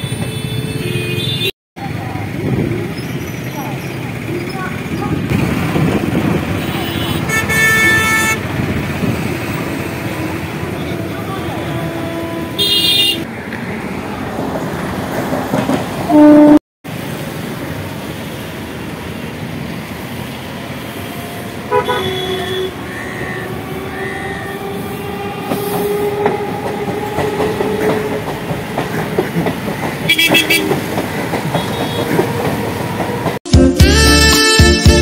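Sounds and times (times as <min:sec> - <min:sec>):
train rumbling: 0:01.8 - 0:33.4
train horn: 0:07.0 - 0:08.4, 0:10.9 - 0:13.2, 0:16.1 - 0:16.6, 0:21.7 - 0:28.2.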